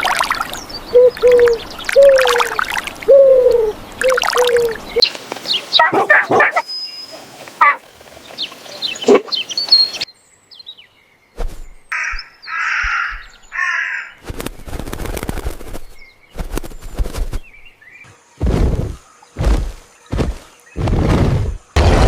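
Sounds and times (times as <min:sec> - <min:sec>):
short bird chirps: 0:05.0 - 0:10.1
crow cawing: 0:11.9 - 0:14.2.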